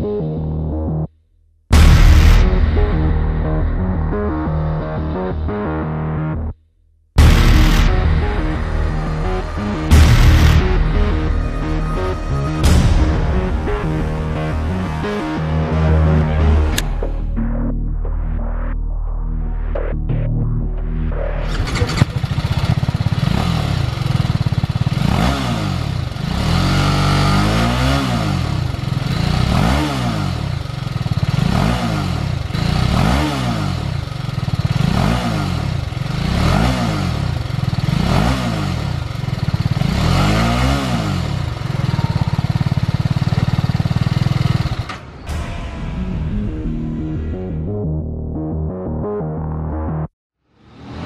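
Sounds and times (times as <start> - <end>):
motorcycle engine revving: 7.2 - 17.1, 21.4 - 45.4.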